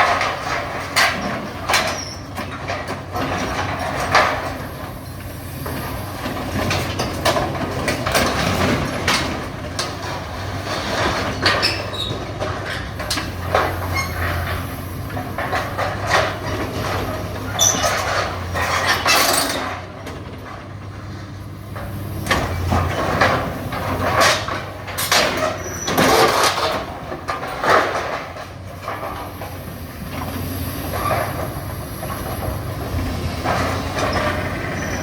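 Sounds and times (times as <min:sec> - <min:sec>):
debris crunching and crashing: 0:00.0 - 0:35.0
diesel engine running: 0:00.0 - 0:35.0
high metallic squeals: 0:13.7 - 0:14.8, 0:34.1 - 0:35.0.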